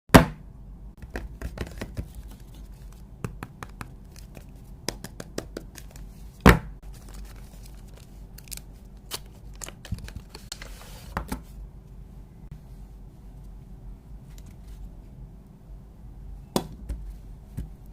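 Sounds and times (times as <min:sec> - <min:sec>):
packaging tearing: 0:06.9 - 0:10.6
packaging clicking and crinkling: 0:06.9 - 0:10.8.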